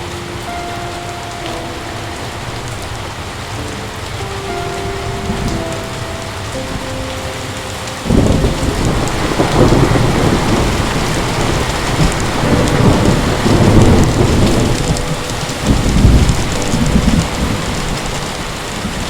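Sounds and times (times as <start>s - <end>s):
heavy rain: 0.0s - 19.0s
thunder rumbling: 0.0s - 19.0s.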